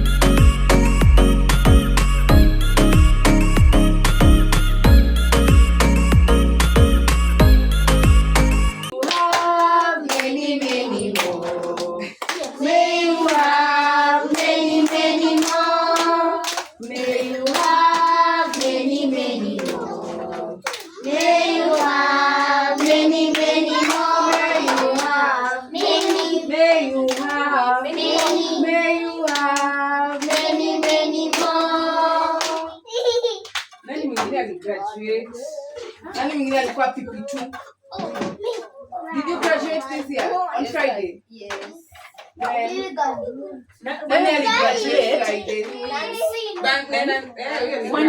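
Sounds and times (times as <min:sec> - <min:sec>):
hand claps: 0:08.9 - 0:12.6, 0:13.2 - 0:13.6, 0:14.3 - 0:18.8, 0:19.6 - 0:22.0, 0:22.8 - 0:25.2, 0:25.8 - 0:26.4, 0:27.1 - 0:27.4, 0:28.0 - 0:28.4, 0:29.3 - 0:31.7, 0:32.4 - 0:32.6, 0:33.4 - 0:34.3
children singing together: 0:08.9 - 0:32.9.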